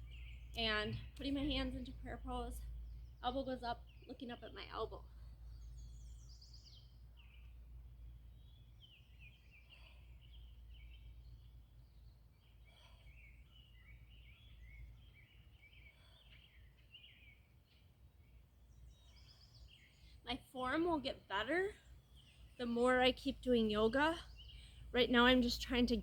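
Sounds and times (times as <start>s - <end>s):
low outdoor rumble: 0.0s - 13.3s, 20.2s - 26.0s
birds chirping: 0.0s - 26.0s.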